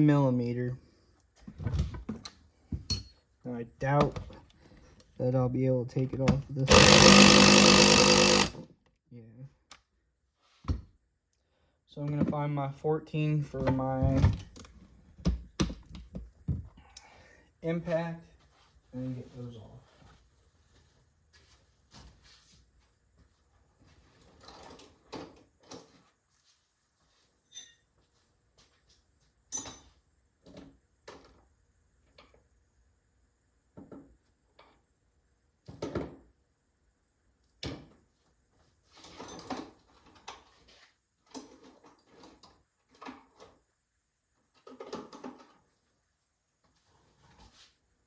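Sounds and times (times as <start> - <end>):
tools clanking and rustling: 38.9 - 43.5.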